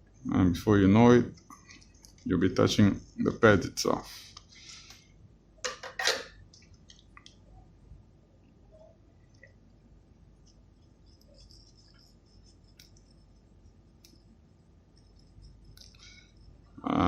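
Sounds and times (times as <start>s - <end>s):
soldering iron sizzle: 10.4s - 16.8s.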